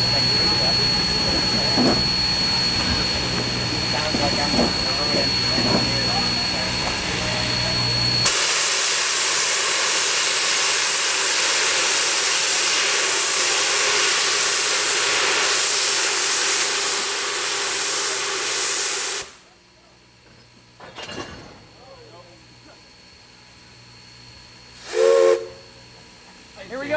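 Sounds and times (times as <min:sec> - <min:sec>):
steam locomotive venting steam: 0:08.2 - 0:19.6, 0:24.8 - 0:25.7.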